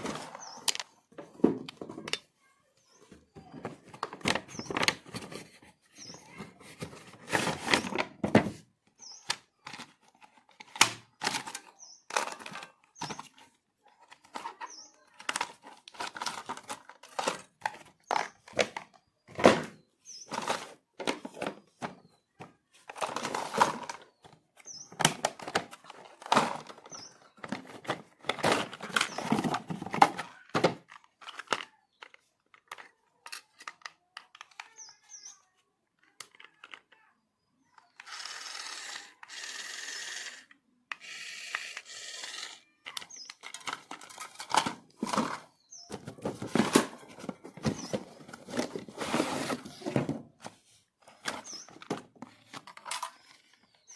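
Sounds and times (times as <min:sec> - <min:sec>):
packaging knocks and thunks: 0:15.3 - 0:24.1, 0:43.5 - 0:50.5.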